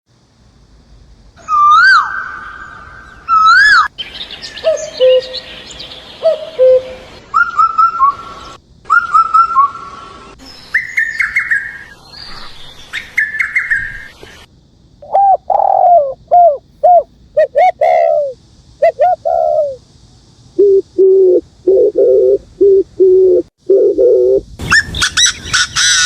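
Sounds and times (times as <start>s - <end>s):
birds whistling and chirping: 1.4s - 14.2s.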